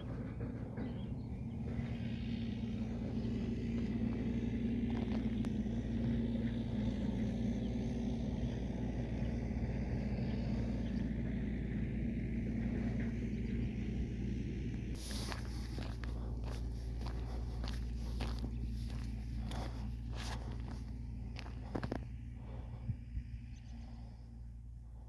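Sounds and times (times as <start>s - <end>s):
steady engine hum: 0.0s - 25.0s.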